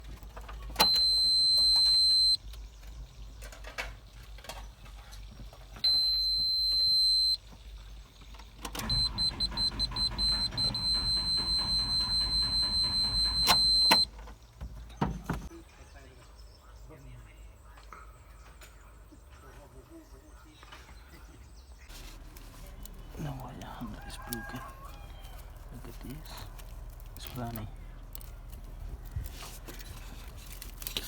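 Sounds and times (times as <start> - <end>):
diesel engine cranking: 0.5 - 2.4, 8.4 - 14.1, 22.1 - 31.0
warning buzzer high tone: 8.9 - 14.0.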